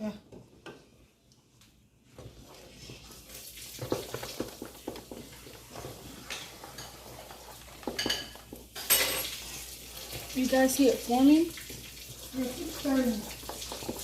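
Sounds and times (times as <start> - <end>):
wooden spoon stirring soup in a pot: 0.2 - 14.0
spoon knocking and scraping a pot: 3.7 - 10.3, 13.3 - 14.0.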